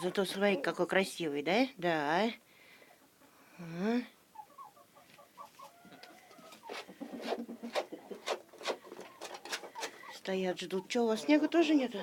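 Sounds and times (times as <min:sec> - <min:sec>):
chickens clucking softly: 0:04.3 - 0:11.5.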